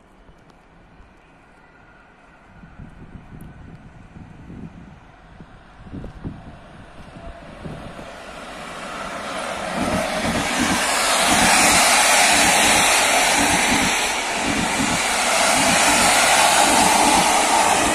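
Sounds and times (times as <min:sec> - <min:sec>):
passenger train rushing past: 0:01.4 - 0:17.9
wheels clattering on track: 0:09.4 - 0:17.9.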